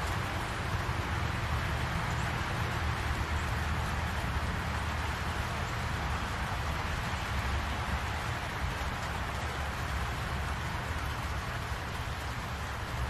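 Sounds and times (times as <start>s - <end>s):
rain falling on trees: 0.0s - 13.0s.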